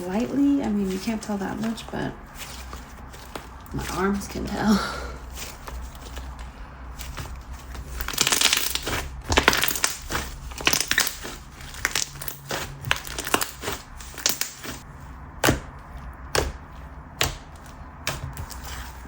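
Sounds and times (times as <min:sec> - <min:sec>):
slime squeezed and crackling: 0:05.2 - 0:16.6.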